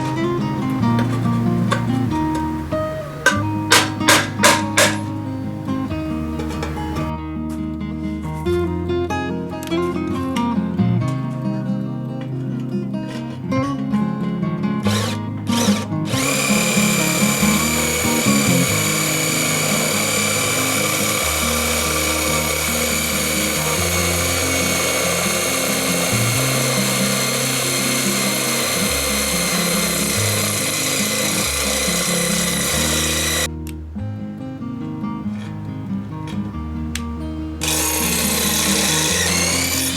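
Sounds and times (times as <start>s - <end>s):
electric power tool whining: 0.0s - 7.1s, 14.8s - 33.5s, 37.6s - 39.9s.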